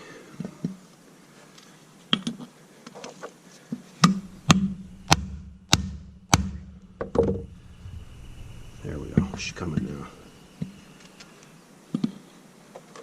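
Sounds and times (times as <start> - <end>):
hammer striking metal: 4.0 - 8.0
low steady hum: 4.0 - 11.9.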